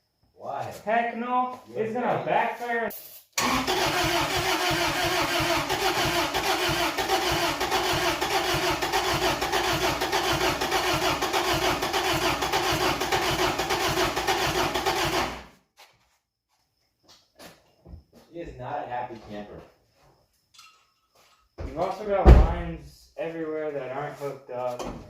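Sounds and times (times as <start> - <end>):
starter cranking engine: 3.4 - 15.4.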